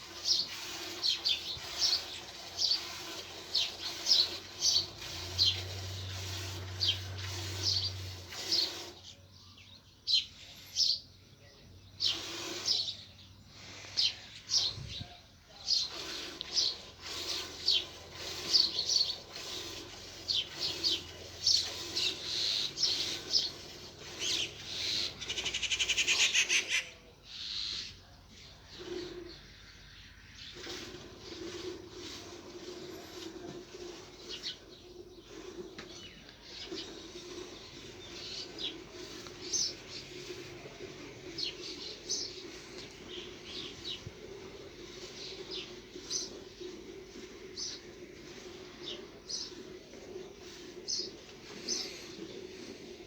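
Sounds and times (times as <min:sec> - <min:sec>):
small birds chirping: 0:00.0 - 0:53.0
fast rattling bird trill: 0:24.2 - 0:26.9.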